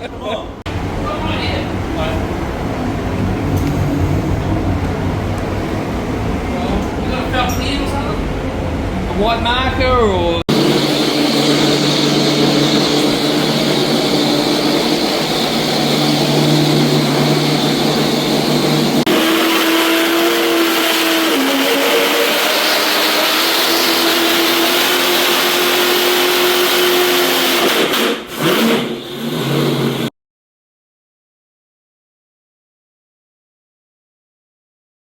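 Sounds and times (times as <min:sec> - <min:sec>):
car engine running loud: 0:00.7 - 0:07.4, 0:10.5 - 0:30.1.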